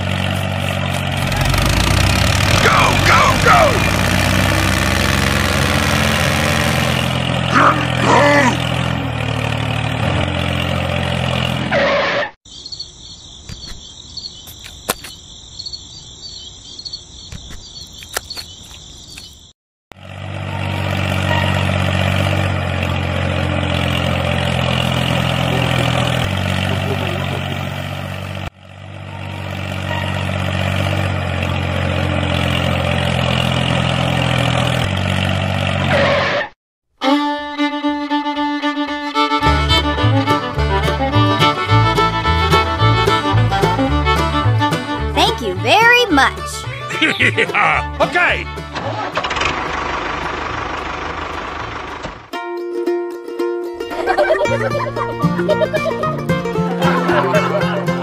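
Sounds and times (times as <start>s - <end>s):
tractor engine running: 0.0s - 11.9s, 17.3s - 36.1s, 37.2s - 58.0s
high chirping: 12.5s - 19.5s.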